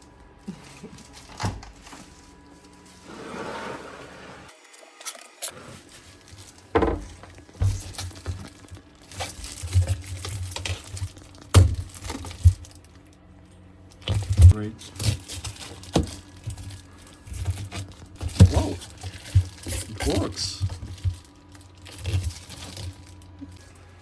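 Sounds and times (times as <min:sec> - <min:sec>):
rustling and rubbing: 0:01.8 - 0:04.5, 0:05.5 - 0:11.4.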